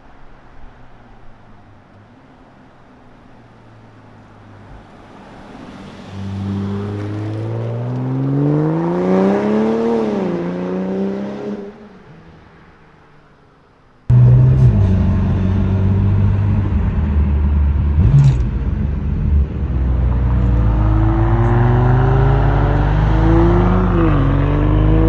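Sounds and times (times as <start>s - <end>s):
car accelerating past: 4.9s - 11.9s, 14.1s - 25.0s.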